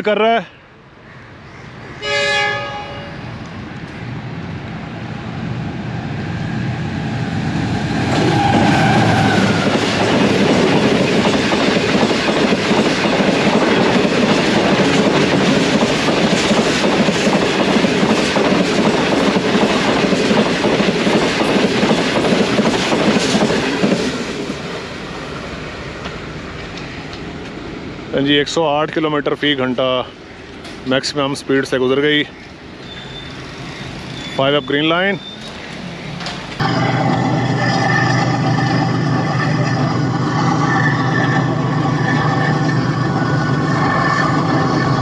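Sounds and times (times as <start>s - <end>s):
passenger train passing: 0.0s - 45.0s
clickety-clack over rail joints: 9.5s - 24.2s, 35.4s - 36.6s.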